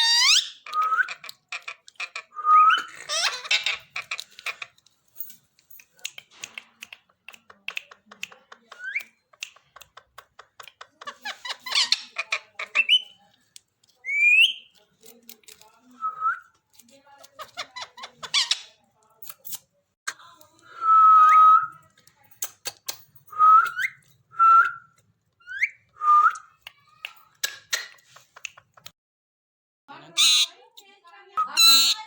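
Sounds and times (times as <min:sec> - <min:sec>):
parrot whistling and squawking: 0:00.0 - 0:01.3, 0:30.2 - 0:30.5, 0:31.4 - 0:32.0.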